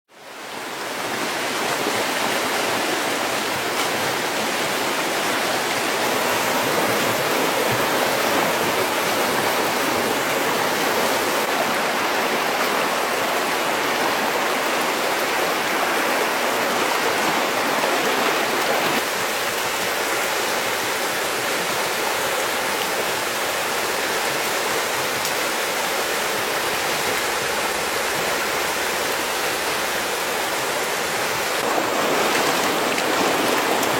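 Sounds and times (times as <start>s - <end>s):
water rushing: 0.1s - 33.9s.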